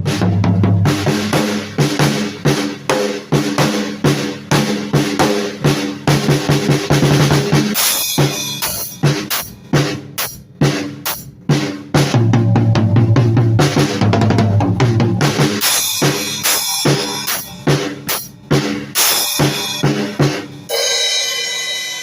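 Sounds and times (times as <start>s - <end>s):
drum kit playing: 0.0s - 22.0s
cymbal crash: 7.8s - 9.6s, 12.0s - 22.0s.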